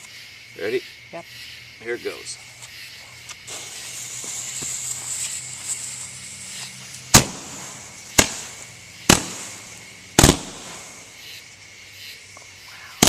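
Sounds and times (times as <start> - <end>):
firework bangs: 2.5 - 11.5.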